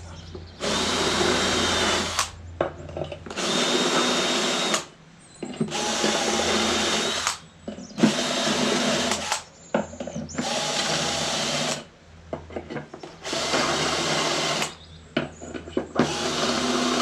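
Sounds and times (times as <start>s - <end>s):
electric drill drilling: 0.6s - 2.4s, 3.3s - 4.9s, 5.7s - 7.4s, 8.0s - 9.4s, 10.4s - 11.9s, 13.2s - 14.8s, 16.0s - 17.0s.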